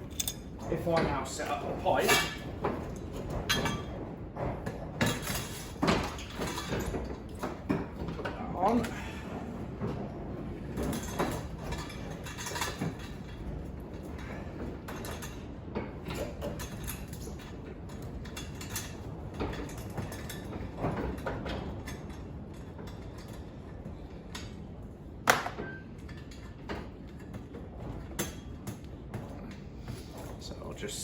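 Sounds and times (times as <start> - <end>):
metal clinks and scrapes: 0.0 - 0.5.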